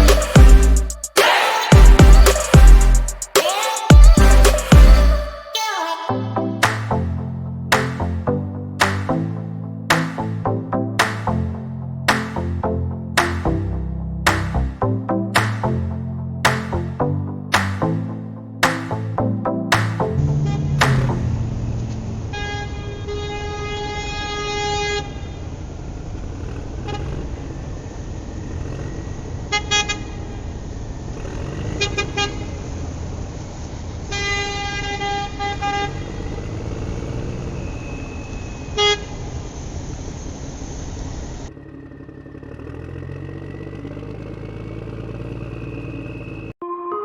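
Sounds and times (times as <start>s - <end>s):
truck engine running: 0.0s - 1.1s, 41.5s - 46.5s
truck horn honking: 20.2s - 25.0s.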